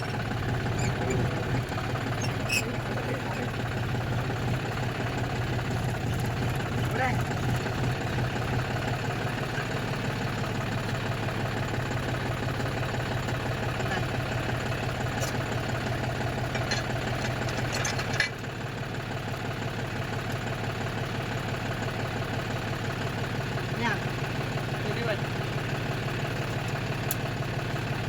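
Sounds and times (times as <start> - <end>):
diesel tractor engine idling: 0.0 - 28.0.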